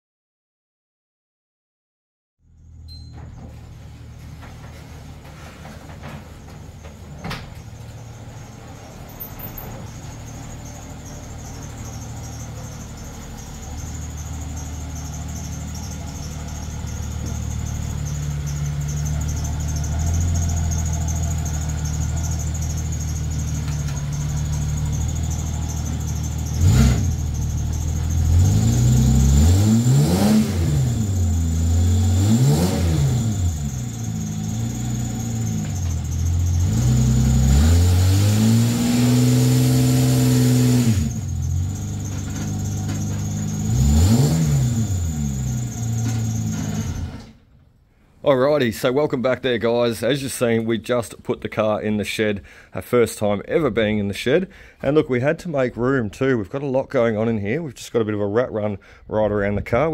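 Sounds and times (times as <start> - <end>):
drive belt squealing: 2.6 - 47.4
car engine idling and revving: 3.5 - 47.5.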